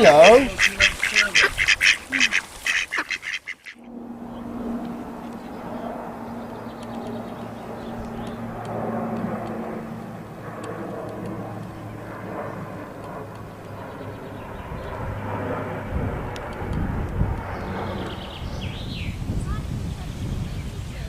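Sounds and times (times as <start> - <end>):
outdoor background noise: 0.0 - 21.0
low engine drone: 3.0 - 19.2.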